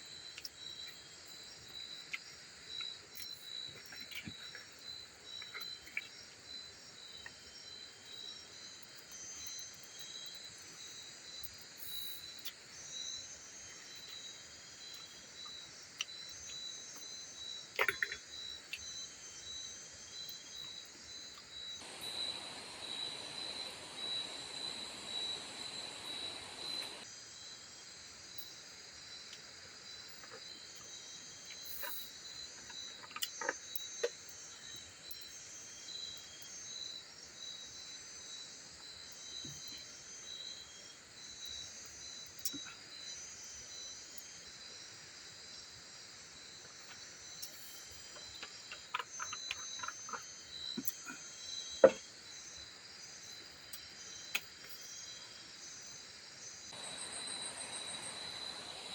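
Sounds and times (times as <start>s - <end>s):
insects chirping: 0.0s - 58.9s
hiss: 21.8s - 27.0s, 56.8s - 58.9s.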